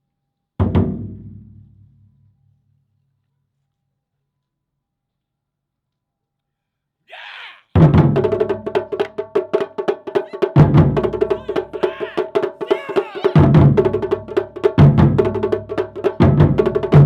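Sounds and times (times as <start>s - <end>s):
taiko drumming: 10.1s - 17.0s.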